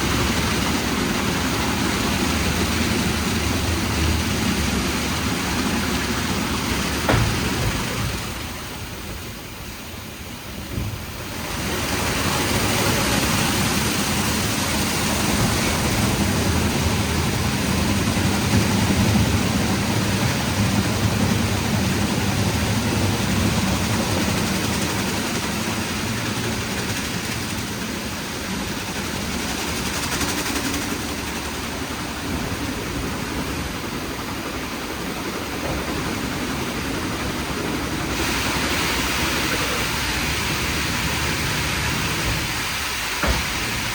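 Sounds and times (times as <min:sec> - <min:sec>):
water spraying onto car: 0:00.0 - 0:32.3, 0:36.2 - 0:43.9
machinery hum: 0:00.0 - 0:43.9.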